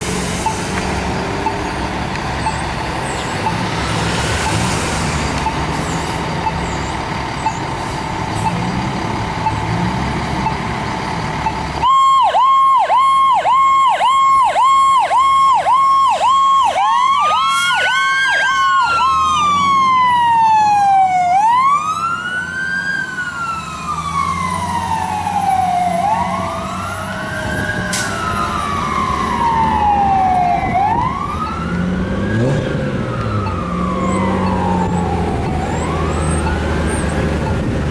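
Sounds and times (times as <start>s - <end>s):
engine and road noise: 0.0s - 37.9s
electronic siren yelp and wail: 11.8s - 37.0s
second siren wailing: 11.8s - 37.7s.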